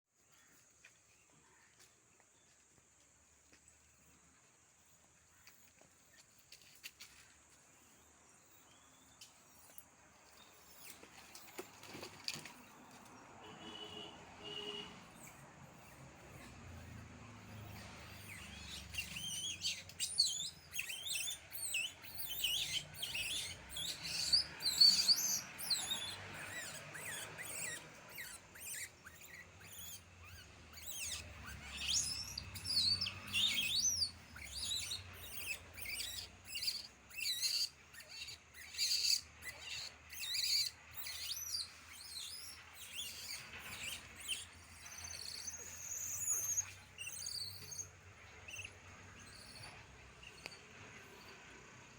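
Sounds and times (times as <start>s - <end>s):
birds chirping and whistling: 13.7s - 51.4s.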